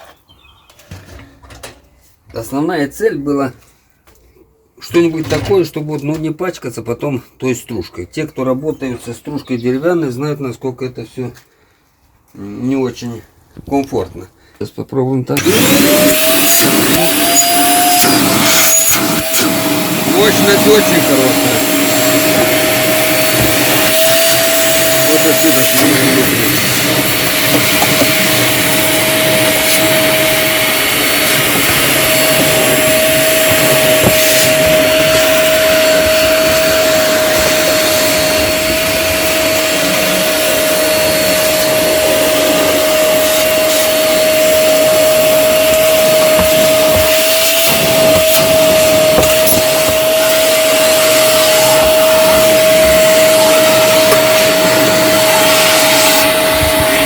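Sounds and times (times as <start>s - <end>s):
vacuum whining: 15.4s - 57.0s.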